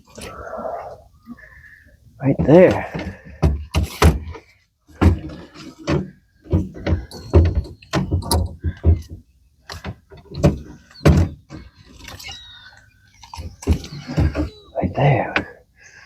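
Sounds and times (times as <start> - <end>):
hollow thumps against boat: 5.0 - 11.7.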